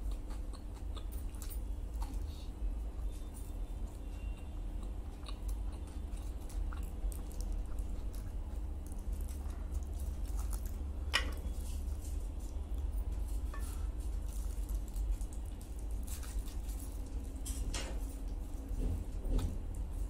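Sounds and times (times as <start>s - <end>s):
man chewing and biting: 0.0s - 20.0s
foil crackle: 13.1s - 17.7s.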